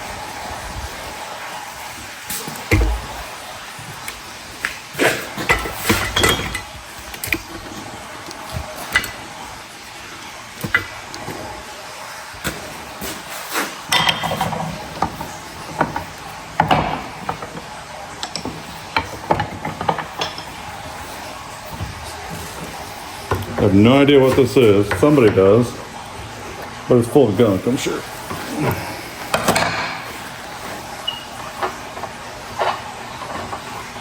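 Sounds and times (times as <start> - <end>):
metal tools clinking and knocking: 5.4 - 7.4.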